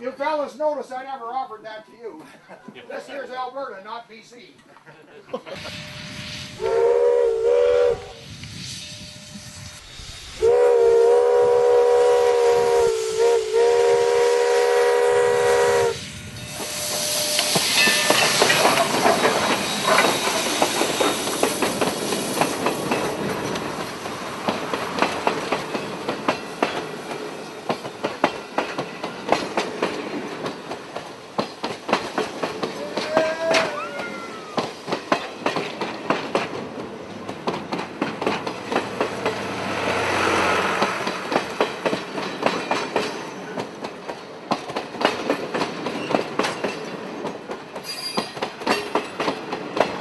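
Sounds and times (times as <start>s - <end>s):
rush of steam: 5.4s - 37.2s, 38.1s - 43.8s
steam locomotive chime whistle: 5.6s - 9.8s, 10.4s - 18.8s, 47.8s - 48.4s
train wheels clicking on rails: 11.4s - 50.0s.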